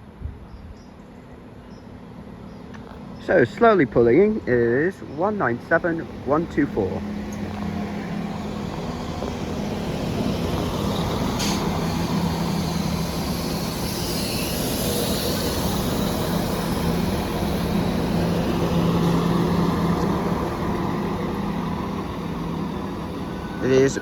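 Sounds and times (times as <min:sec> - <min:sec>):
diesel train engine humming: 0:00.9 - 0:24.0
high hiss: 0:08.7 - 0:24.0.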